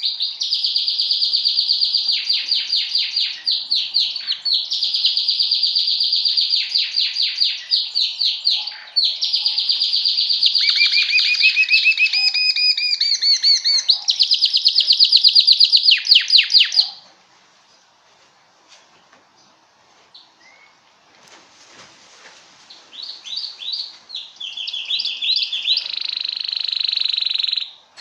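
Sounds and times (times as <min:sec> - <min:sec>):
lower bird trill: 0:00.0 - 0:17.0, 0:22.9 - 0:28.0
canary singing trills: 0:00.0 - 0:17.1, 0:22.7 - 0:28.0.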